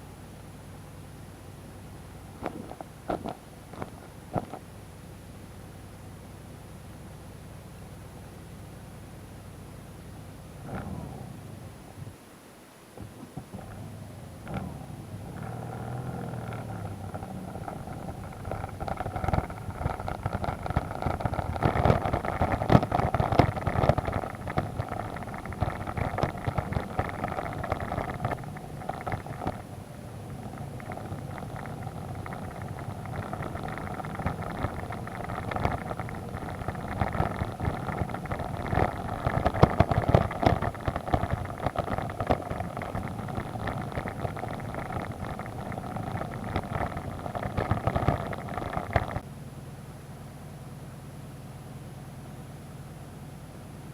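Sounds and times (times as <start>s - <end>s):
vehicle knocks and rattles: 13.0s - 49.2s
vehicle engine running: 13.0s - 53.9s.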